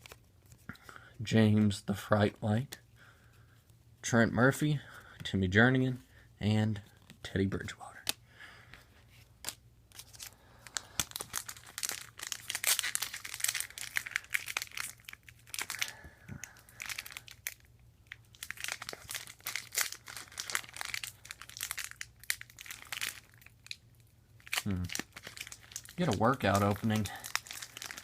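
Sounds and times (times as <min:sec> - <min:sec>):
wrapper crinkling and tearing: 0:09.4 - 0:23.8, 0:24.4 - 0:28.0.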